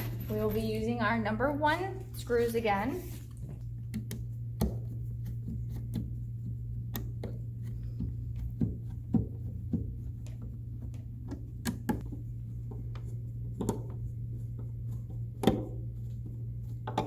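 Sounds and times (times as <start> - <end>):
steady low hum: 0.0 - 17.0
plastic panels clicking and knocking: 6.8 - 12.1, 12.9 - 14.0, 15.4 - 15.8, 16.8 - 17.0.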